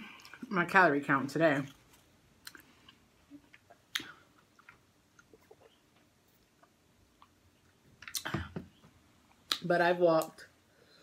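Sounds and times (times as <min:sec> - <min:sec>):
faint chewing mouth sounds: 0:01.7 - 0:08.3.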